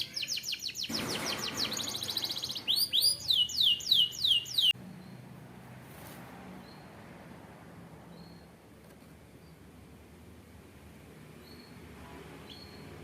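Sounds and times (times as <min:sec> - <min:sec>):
canary singing: 0:00.0 - 0:05.2.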